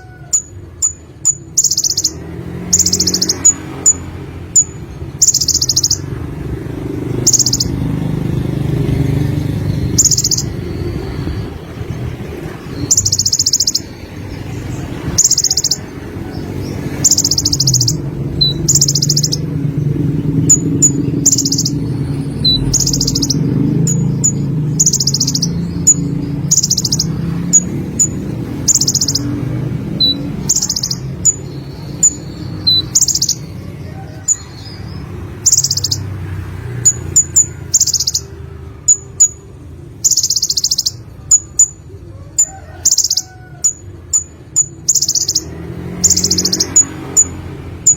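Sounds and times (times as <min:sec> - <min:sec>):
sharp high bird chips: 0:00.0 - 0:16.0, 0:16.6 - 0:33.7, 0:34.3 - 0:41.9, 0:42.9 - 0:47.9
sunbird trilled song: 0:00.3 - 0:06.2, 0:07.1 - 0:08.0, 0:08.8 - 0:42.0, 0:42.8 - 0:47.9.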